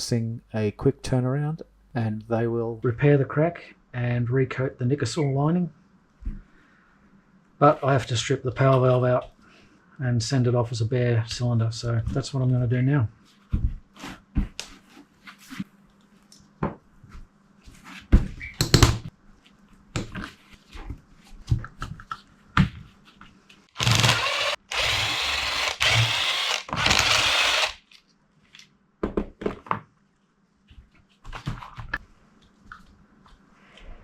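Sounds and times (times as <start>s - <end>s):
handheld power tool running: 23.8s - 27.8s.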